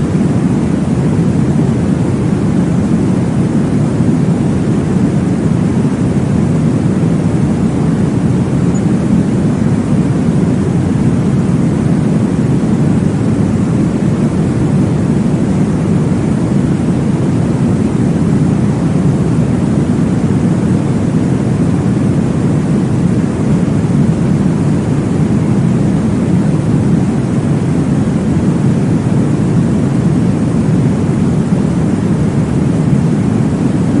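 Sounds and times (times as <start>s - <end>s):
muffled womb whooshing noise: 0.0s - 34.0s.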